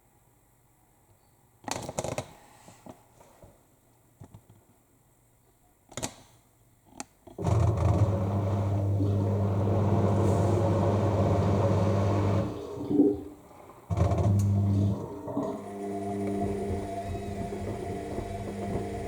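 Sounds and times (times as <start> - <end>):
washing machine humming: 7.4 - 19.0.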